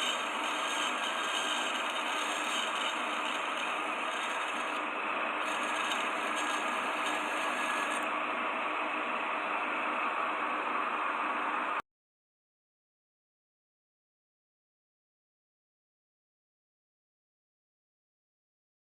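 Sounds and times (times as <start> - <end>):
machine running: 0.0 - 4.8, 5.4 - 8.1.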